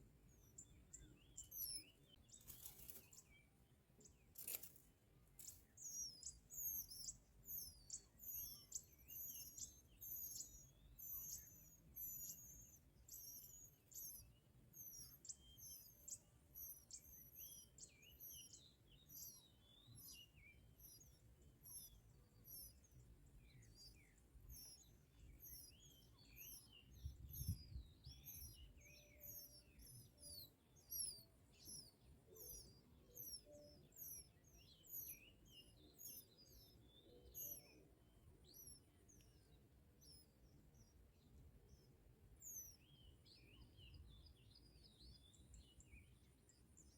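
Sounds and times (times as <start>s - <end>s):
high thin bird chirps: 4.2s - 21.1s.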